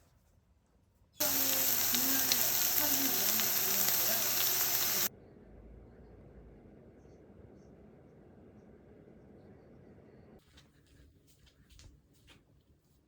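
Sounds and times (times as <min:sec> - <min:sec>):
food sizzling in a hot pan: 0:01.2 - 0:05.1.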